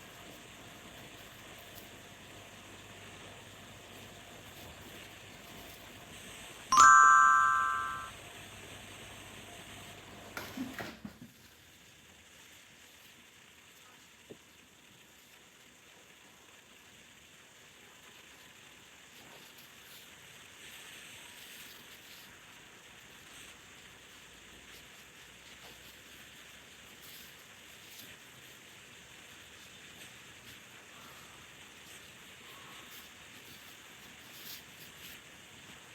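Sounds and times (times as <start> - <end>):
steady low hiss: 11.6 - 35.9.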